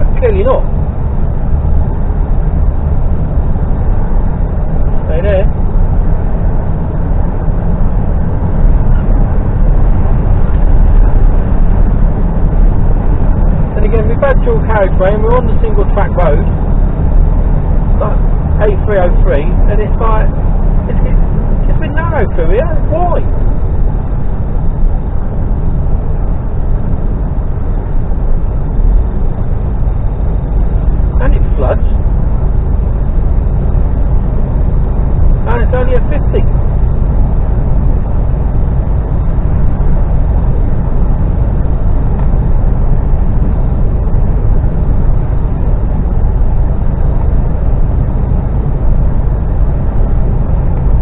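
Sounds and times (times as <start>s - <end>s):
lorry engine rumble: 0.0s - 51.0s.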